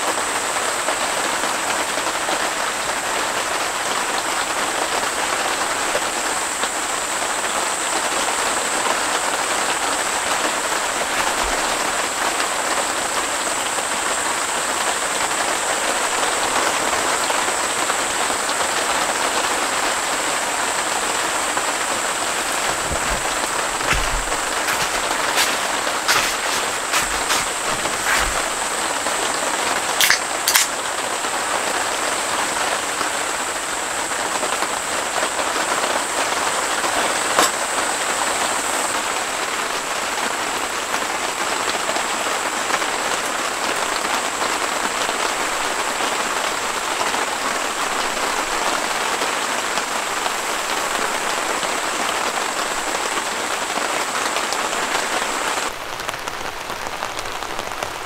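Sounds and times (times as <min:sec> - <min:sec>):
rain on plastic tent panels: 0:00.0 - 0:58.0
sharp clicks: 0:30.0 - 0:30.7.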